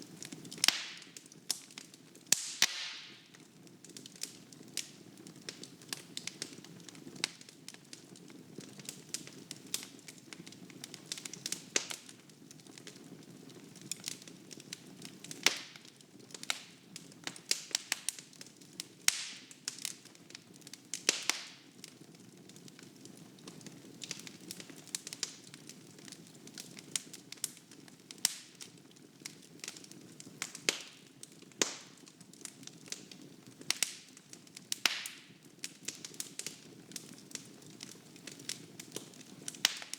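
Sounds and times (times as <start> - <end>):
logs crackling and popping: 0.0 - 39.9.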